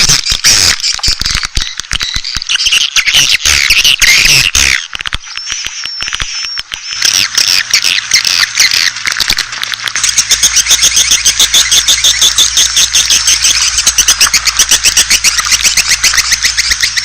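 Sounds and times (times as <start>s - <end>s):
birds twittering chirps: 0.1s - 17.0s
low steady hum: 5.2s - 17.0s.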